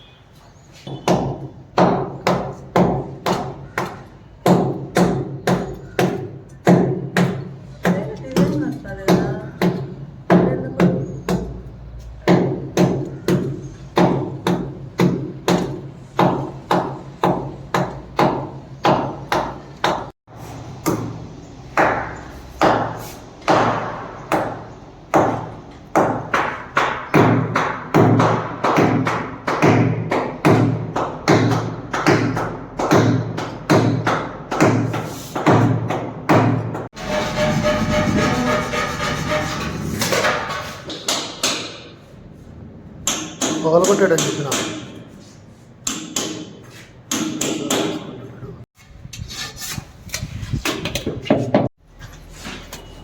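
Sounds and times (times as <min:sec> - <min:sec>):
hammer blows on ceramic tiles: 0:00.9 - 0:20.1, 0:43.0 - 0:45.2, 0:45.8 - 0:48.2.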